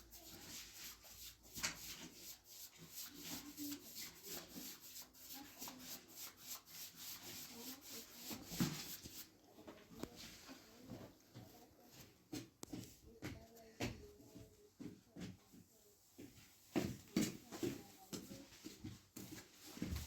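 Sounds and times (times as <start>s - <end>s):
rapid scrubbing strokes on a surface: 0.0s - 9.4s.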